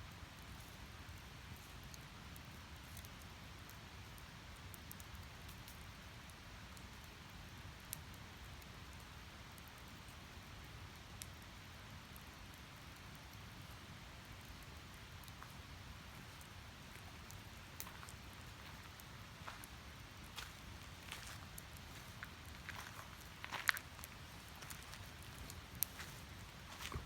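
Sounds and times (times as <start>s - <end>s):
firewood burning and crackling: 0.0s - 27.0s
fire popping: 7.8s - 27.0s.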